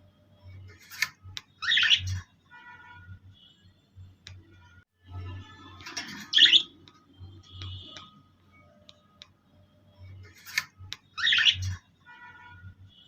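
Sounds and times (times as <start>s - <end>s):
pet birds chirping and calling: 1.6s - 2.2s, 5.9s - 6.8s, 10.4s - 11.8s.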